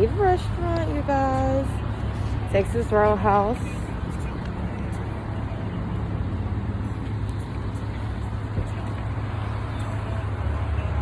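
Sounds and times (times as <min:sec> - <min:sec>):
car engine rumble: 0:00.0 - 0:11.0
road noise: 0:00.0 - 0:11.0.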